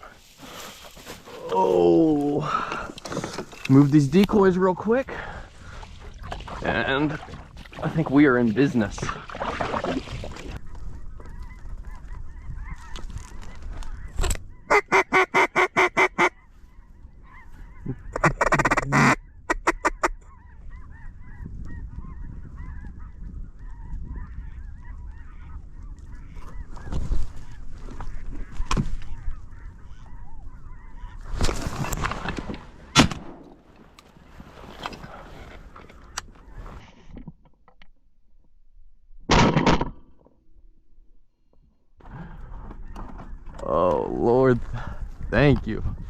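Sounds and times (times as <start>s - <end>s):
geese and ducks calling: 10.5s - 33.1s.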